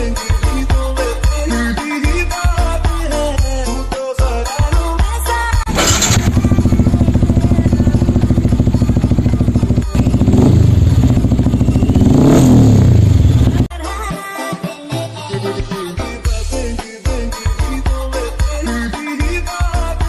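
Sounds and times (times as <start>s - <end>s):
motorcycle engine idling and revving: 5.7s - 13.7s.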